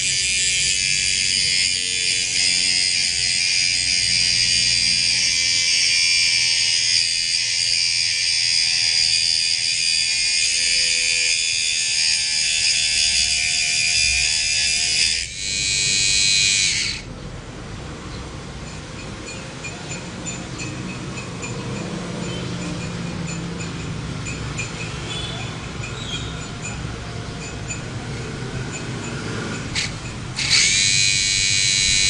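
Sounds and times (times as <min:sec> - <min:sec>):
mini grinder whining: 0:00.0 - 0:17.1, 0:25.6 - 0:32.0.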